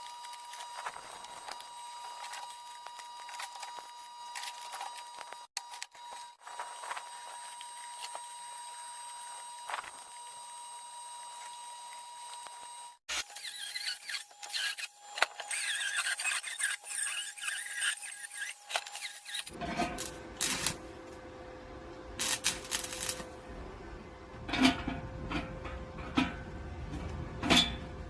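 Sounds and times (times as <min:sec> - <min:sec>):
workshop hum: 0:00.0 - 0:28.0
steel squealing and scraping: 0:13.1 - 0:20.8.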